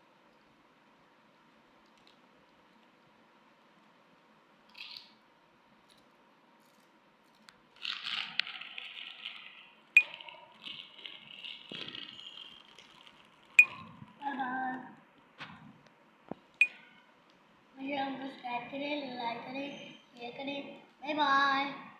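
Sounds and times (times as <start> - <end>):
chip packet crinkling: 6.8 - 14.2.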